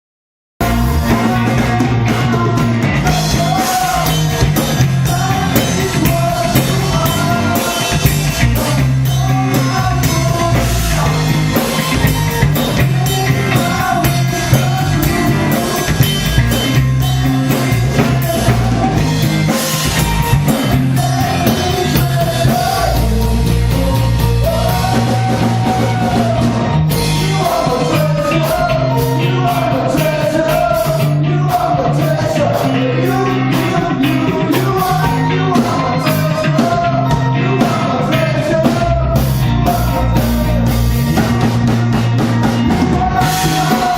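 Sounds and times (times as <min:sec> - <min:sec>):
live rock band playing: 0:00.6 - 0:43.9
person singing: 0:00.6 - 0:43.9.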